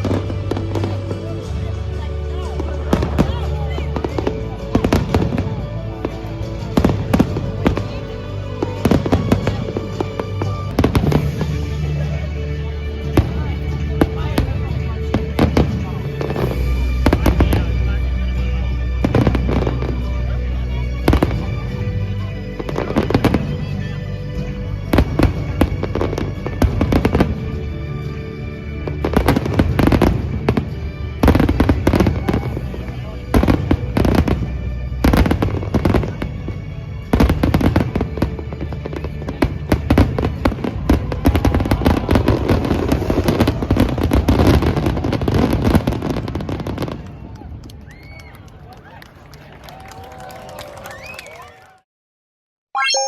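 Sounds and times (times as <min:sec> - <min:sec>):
fireworks bangs and crackles: 0:00.0 - 0:23.8, 0:24.4 - 0:47.8
music playing: 0:00.0 - 0:42.0, 0:52.8 - 0:53.0.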